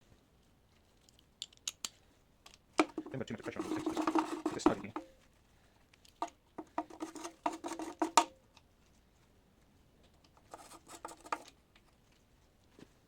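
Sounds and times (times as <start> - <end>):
socket ratchet clicking: 1.4 - 2.0.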